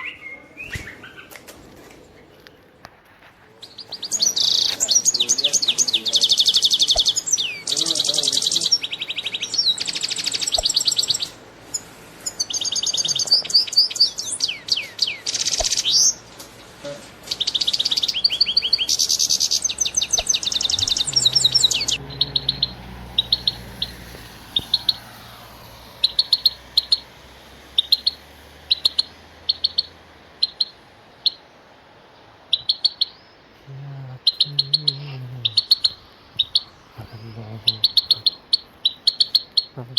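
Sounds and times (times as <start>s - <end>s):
songbirds trilling and whistling: 0.0s - 39.9s
short bird chirps: 3.6s - 16.2s, 16.8s - 27.1s, 27.8s - 31.5s, 32.5s - 33.4s.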